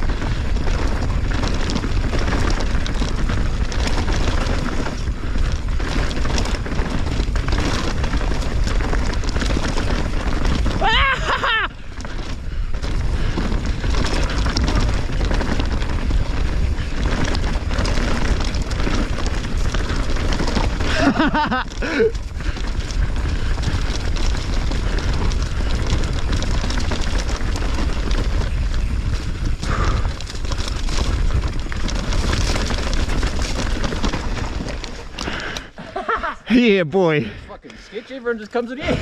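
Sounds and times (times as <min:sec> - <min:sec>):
wind rush on microphone: 0:00.0 - 0:36.0
tyre noise on dirt: 0:00.0 - 0:37.3
bike rattling: 0:00.0 - 0:39.0.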